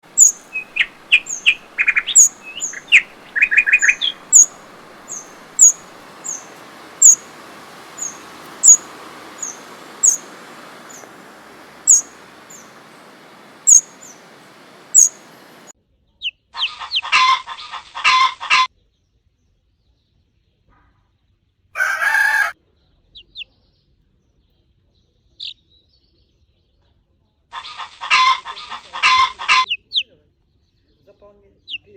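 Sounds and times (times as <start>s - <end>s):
rapid bird chirping: 0.0s - 15.7s
steady hiss: 0.0s - 15.7s
high bird peeps: 0.1s - 15.7s.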